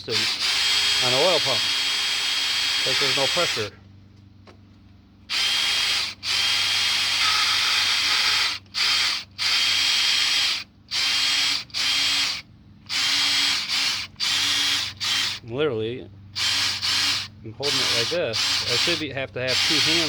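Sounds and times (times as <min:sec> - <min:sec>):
electric drill whirring: 0:00.0 - 0:03.7, 0:05.3 - 0:15.4, 0:16.4 - 0:20.0.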